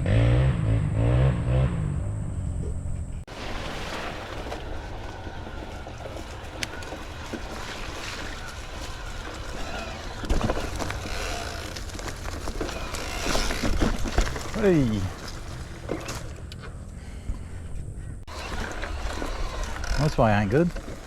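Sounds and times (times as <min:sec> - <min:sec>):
tyres rumbling on dirt: 0:00.0 - 0:21.0
bike jolting knocks: 0:03.7 - 0:16.4.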